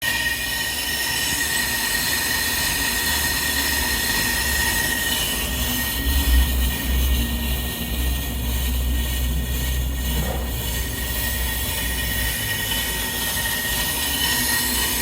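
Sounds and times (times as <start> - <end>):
brake lathe squealing: 0.0 - 15.0
low motor hum: 5.4 - 15.0
metal hiss: 8.4 - 15.0.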